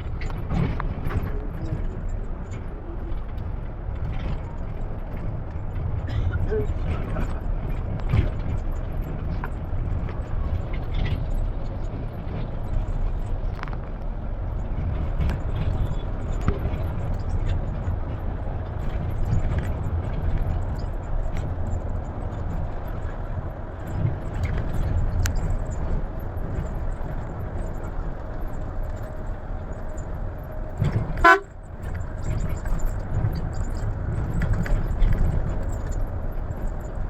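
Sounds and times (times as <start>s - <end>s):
bus engine and road rumble: 0.0s - 37.0s
loud horn blast: 31.1s - 31.6s.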